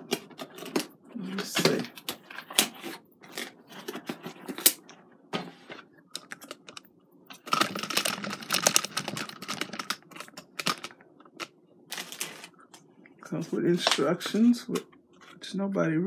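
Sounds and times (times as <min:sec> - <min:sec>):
cardboard packaging rustling: 0:11.9 - 0:12.6.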